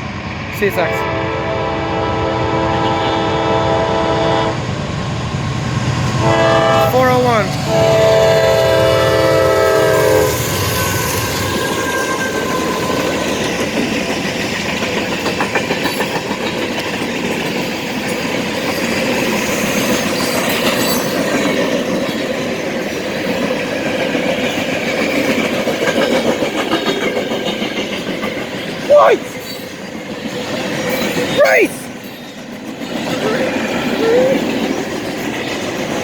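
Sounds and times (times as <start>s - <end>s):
train rumble: 0.0s - 36.0s
train air horn: 0.9s - 4.6s, 6.2s - 12.6s
wheels clacking over rail joints: 11.5s - 31.4s.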